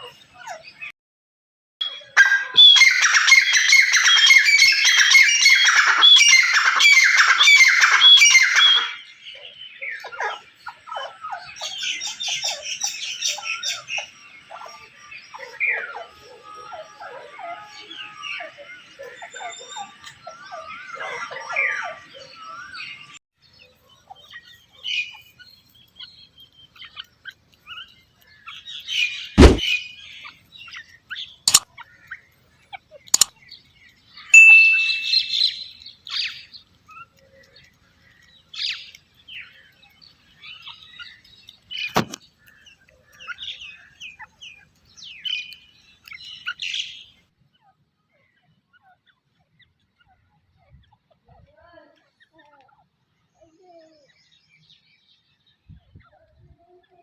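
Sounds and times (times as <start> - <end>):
faint bird chirps: 23.6 - 57.0
bird calling shrill notes: 34.2 - 36.4.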